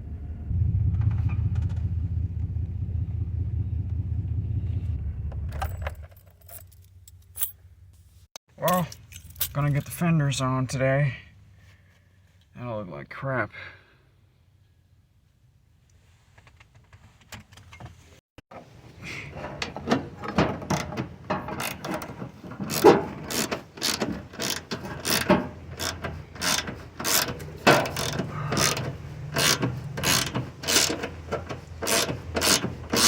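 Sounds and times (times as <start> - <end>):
low steady hum: 0.0 - 8.2
ratchet wrench clicking: 22.7 - 31.1, 31.8 - 33.0.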